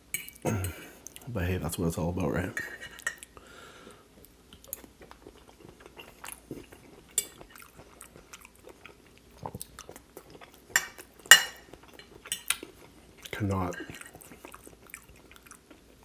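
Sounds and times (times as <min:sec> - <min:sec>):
person chewing: 0:04.2 - 0:16.0.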